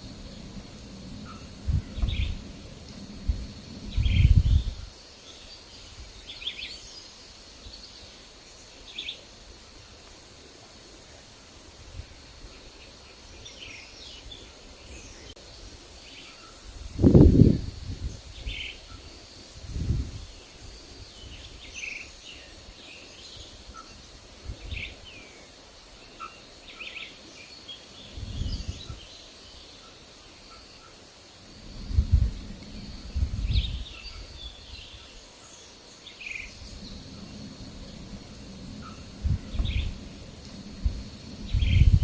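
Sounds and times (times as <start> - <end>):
wind gusts on microphone: 0.0 - 5.0, 16.6 - 21.8, 23.4 - 25.2, 28.0 - 29.2, 31.4 - 35.3, 36.2 - 42.0
birds chirping: 0.0 - 9.2, 20.2 - 42.0
steady high hiss: 0.0 - 42.0.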